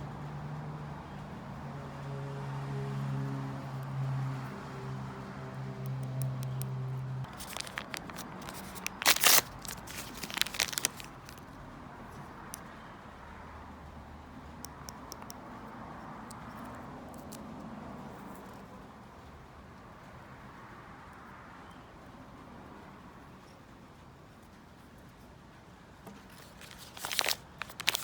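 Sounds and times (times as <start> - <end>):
plastic packaging crinkling and tearing: 7.3 - 11.5, 26.3 - 28.0.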